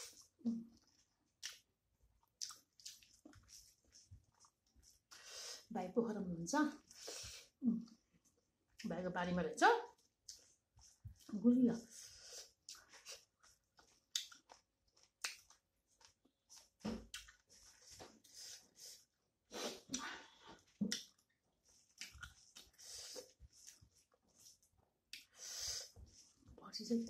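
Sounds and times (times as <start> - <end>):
person chewing food: 0.0 - 5.4, 10.0 - 11.3, 12.2 - 20.0, 20.6 - 26.4.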